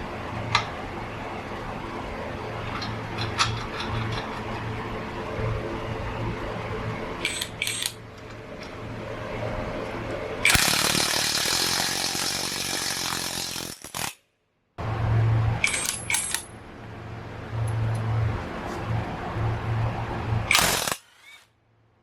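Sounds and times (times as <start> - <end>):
loud steady whirring: 0.0 - 14.1, 14.8 - 21.5
steel parts clinking on metal: 7.2 - 8.0, 15.6 - 16.5.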